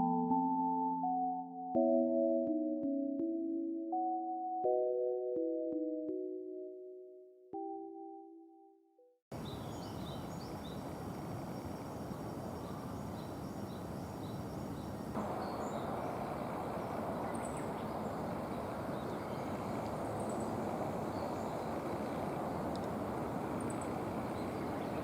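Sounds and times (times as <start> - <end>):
small bird chirps: 9.4 - 25.0
steady rushing noise: 15.2 - 25.0.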